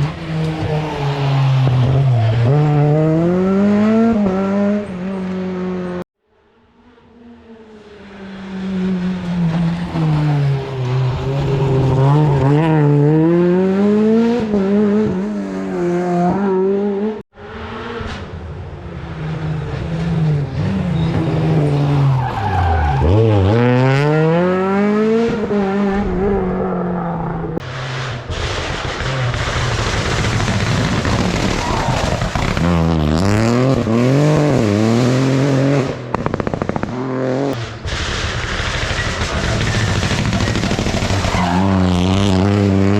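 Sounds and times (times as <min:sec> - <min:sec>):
rally car engines revving: 0:00.0 - 0:06.0, 0:06.7 - 0:42.9
tyre noise on loose road: 0:08.1 - 0:16.4, 0:17.4 - 0:42.9.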